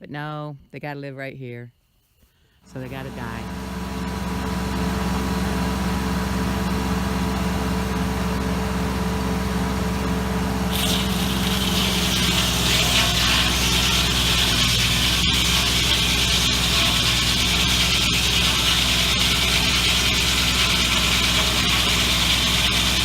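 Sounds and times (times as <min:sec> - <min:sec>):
engine running: 0:02.7 - 0:23.0
hiss: 0:10.7 - 0:23.0.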